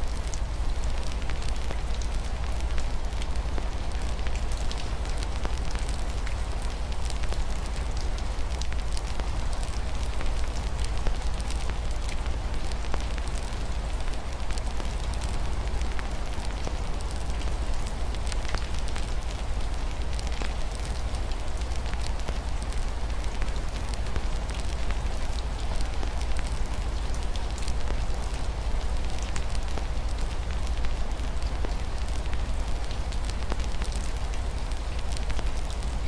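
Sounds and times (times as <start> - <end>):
wood fire crackling: 0.1 - 36.0.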